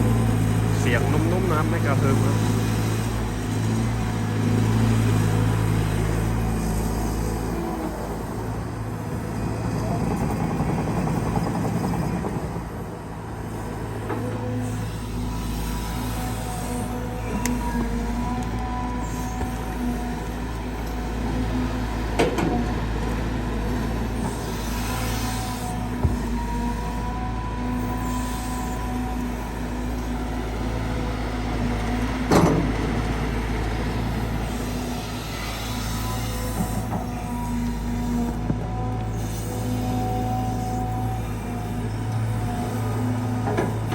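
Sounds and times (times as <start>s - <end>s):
excavator diesel engine working: 0.0s - 43.9s
hydraulic pump whine: 11.7s - 43.9s.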